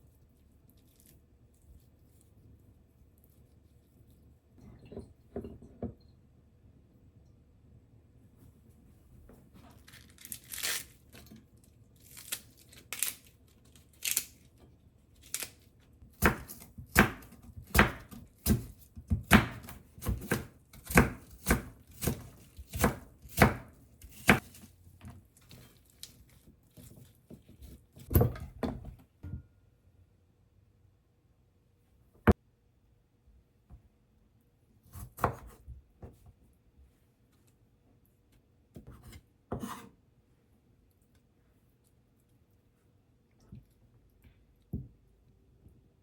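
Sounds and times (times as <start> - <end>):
knife chopping on cutting board: 16.1 - 24.5, 34.9 - 35.6, 38.8 - 39.9.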